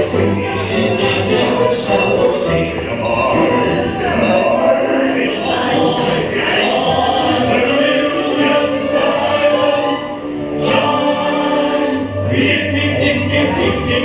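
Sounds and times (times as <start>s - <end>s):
choir singing held notes: 0.0s - 14.0s
rhythmic accompaniment: 0.0s - 14.0s.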